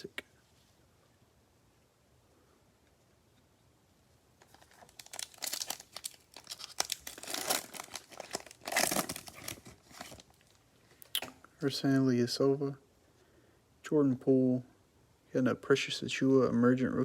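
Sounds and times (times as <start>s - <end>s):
foil wrapper tearing and crinkling: 4.4s - 10.6s.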